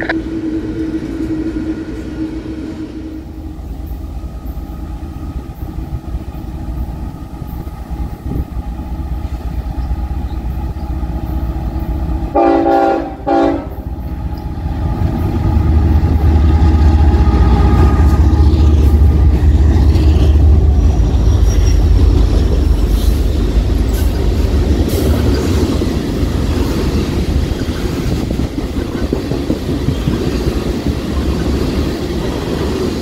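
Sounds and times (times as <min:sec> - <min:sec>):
train rumbling along track: 0:00.0 - 0:33.0
locomotive horn blasts: 0:12.3 - 0:13.9.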